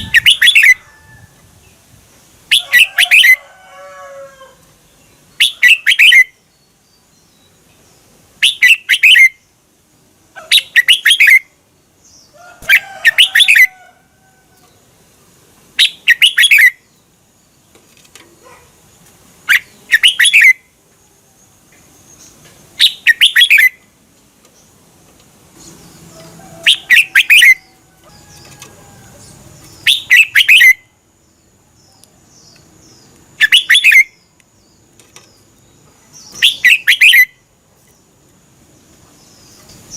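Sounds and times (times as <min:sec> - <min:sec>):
bulbul singing: 0:00.0 - 0:00.8, 0:05.0 - 0:07.6, 0:08.4 - 0:09.6, 0:10.5 - 0:13.7, 0:15.8 - 0:17.7, 0:19.4 - 0:20.8, 0:21.7 - 0:24.8, 0:25.6 - 0:38.1.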